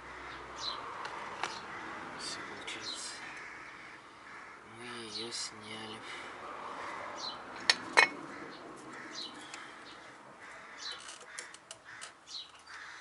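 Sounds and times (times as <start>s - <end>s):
sharp clicks of brake parts: 10.8s - 12.9s.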